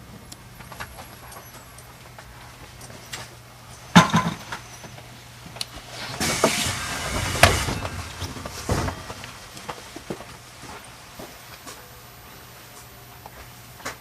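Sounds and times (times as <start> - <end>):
hiss: 5.7 - 10.1.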